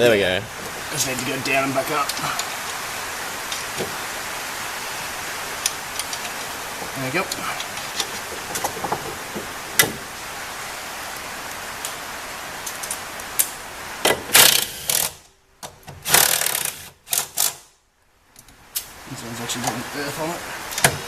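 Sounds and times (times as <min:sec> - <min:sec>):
steady hiss: 0:00.0 - 0:21.0
loud rattling bursts: 0:16.0 - 0:17.7.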